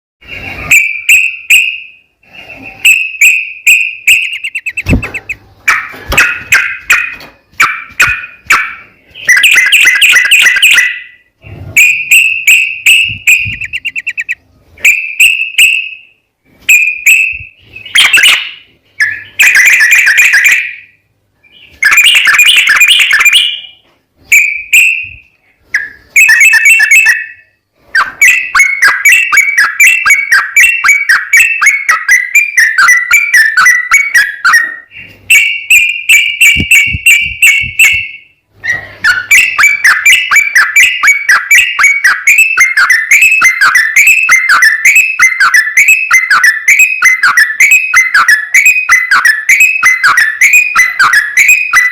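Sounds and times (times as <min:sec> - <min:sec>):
bird singing chattering phrases: 0:02.4 - 0:11.2, 0:11.8 - 0:14.5, 0:38.7 - 0:51.9.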